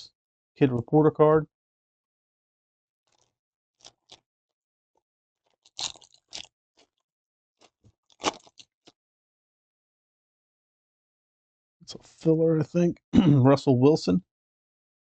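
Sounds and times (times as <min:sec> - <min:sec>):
card pack crinkling: 0:05.5 - 0:06.5.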